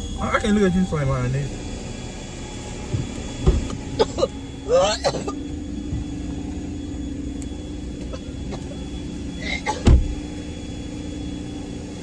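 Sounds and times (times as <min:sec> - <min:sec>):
car engine hum: 0:00.0 - 0:12.0
loud thump: 0:09.8 - 0:10.2.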